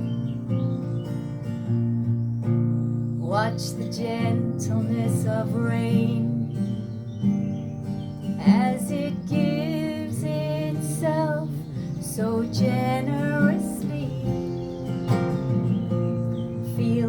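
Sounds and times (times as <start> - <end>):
acoustic guitar: 0.0 - 17.0
woman singing: 3.2 - 7.3, 8.4 - 15.0, 16.4 - 17.0.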